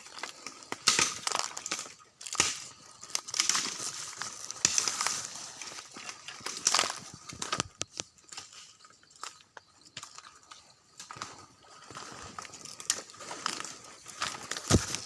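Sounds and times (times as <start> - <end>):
footsteps crunching dry leaves: 0.0 - 7.6, 11.6 - 15.0.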